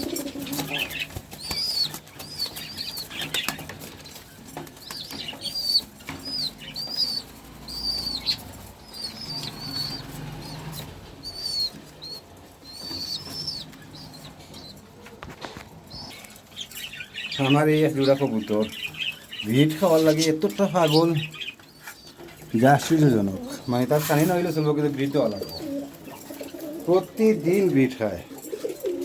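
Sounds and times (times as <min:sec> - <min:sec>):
pigeons flapping wings: 0:00.0 - 0:13.6
pigeons cooing: 0:00.0 - 0:29.0
short high chirping calls: 0:05.3 - 0:14.8.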